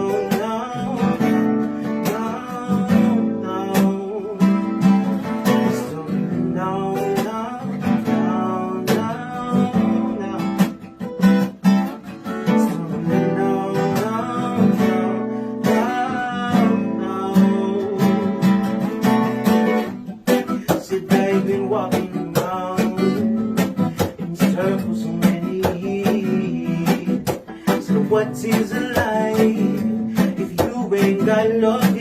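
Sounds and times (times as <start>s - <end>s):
person singing: 0.0s - 32.0s
strummed acoustic guitar: 0.0s - 32.0s.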